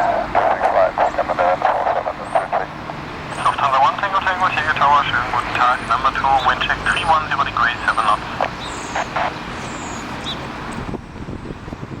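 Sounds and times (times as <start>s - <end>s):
wind buffeting microphone: 10.0s - 12.0s.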